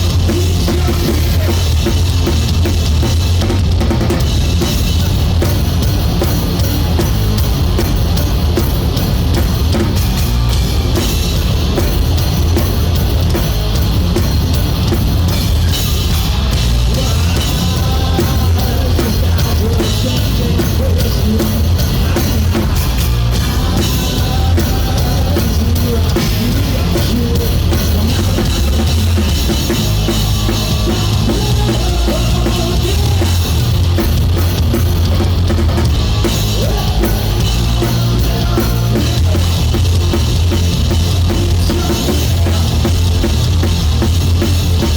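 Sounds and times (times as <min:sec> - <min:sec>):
drum kit: 0:00.0 - 0:44.9
live rock band playing: 0:00.0 - 0:44.9.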